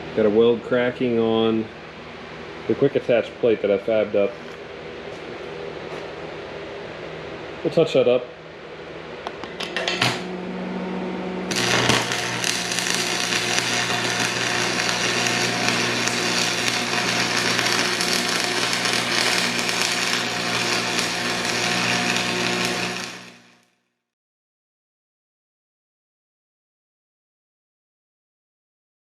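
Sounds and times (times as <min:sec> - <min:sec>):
steady electrical hum: 0:00.0 - 0:23.6
welding arc crackling: 0:11.5 - 0:23.7.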